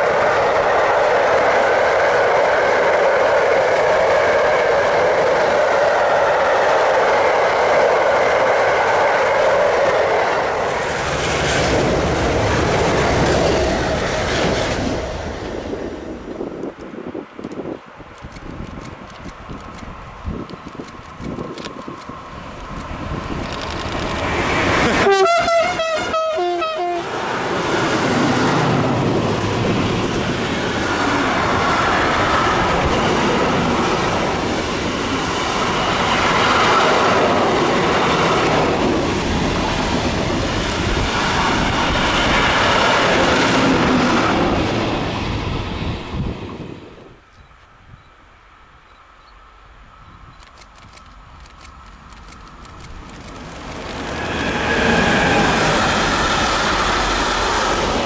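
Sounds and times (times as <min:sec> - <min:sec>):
two-tone train horn: 0:24.8 - 0:27.2.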